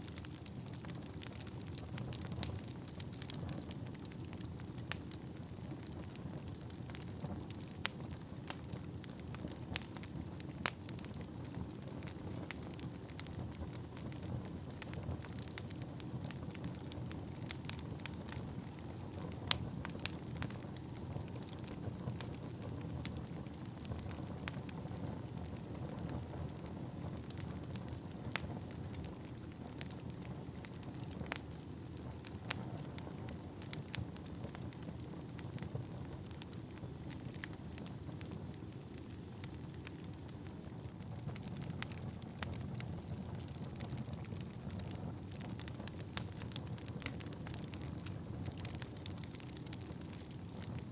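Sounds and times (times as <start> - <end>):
logs crackling and popping: 0.0 - 50.9
faint high whistle: 35.2 - 40.9.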